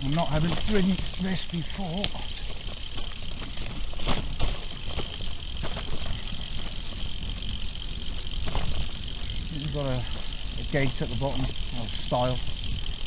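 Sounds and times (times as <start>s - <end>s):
bike rattling: 0.0s - 13.0s
bike tyres on loose ground: 0.0s - 13.0s
sharp knocks over bumps: 2.9s - 6.2s.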